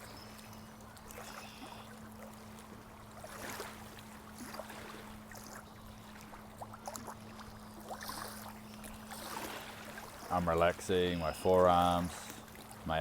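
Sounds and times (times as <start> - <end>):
water trickling and bubbling: 0.0 - 13.0.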